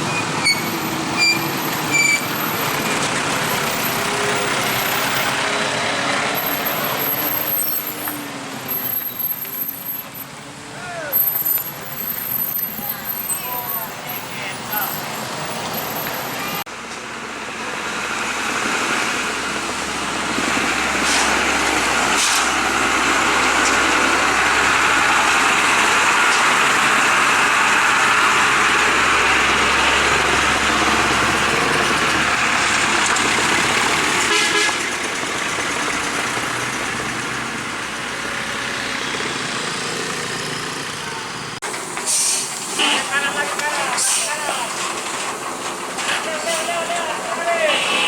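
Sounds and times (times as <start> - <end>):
heavy vehicle engine under load: 0.0 - 48.0.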